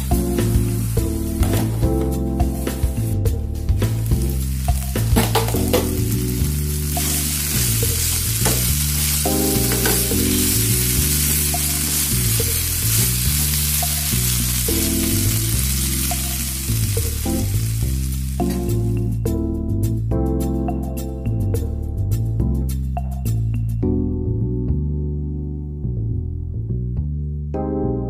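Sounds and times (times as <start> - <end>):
vegetables sizzling in a pan: 0.0 - 19.0
background music: 0.0 - 28.0.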